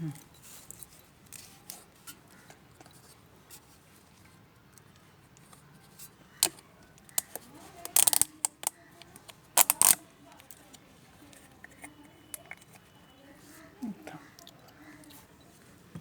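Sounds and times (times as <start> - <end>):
metal tools clicking and clinking: 7.2 - 8.7.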